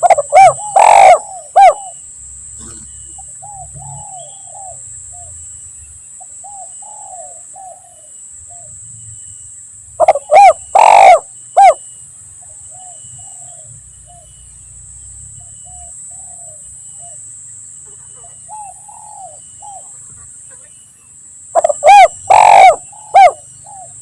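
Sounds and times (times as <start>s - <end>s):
doves cooing: 0.0s - 5.3s, 10.0s - 11.9s, 17.9s - 20.8s, 21.5s - 24.0s.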